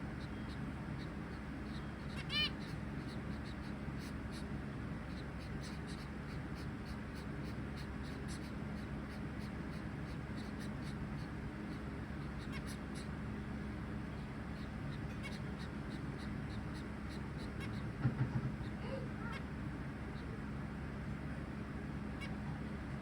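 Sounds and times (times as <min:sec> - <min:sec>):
steady low hum: 0:00.0 - 0:23.0
finch buzzy call: 0:00.2 - 0:13.4, 0:14.2 - 0:18.0.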